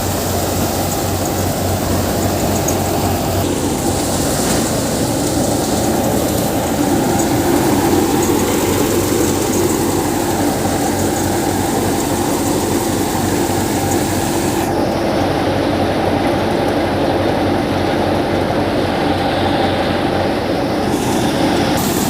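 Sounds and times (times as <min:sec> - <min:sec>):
high hiss: 0:00.0 - 0:14.7, 0:20.8 - 0:22.0
thresher and tractor rumbling: 0:00.0 - 0:22.0.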